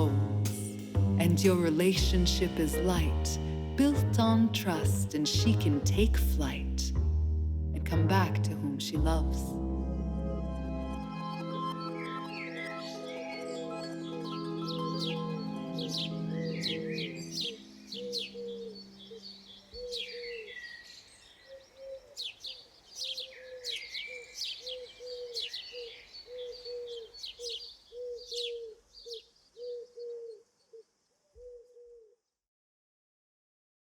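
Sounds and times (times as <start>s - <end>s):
birds chirping: 10.4s - 30.8s
birds cooing: 12.6s - 30.8s, 31.4s - 32.2s.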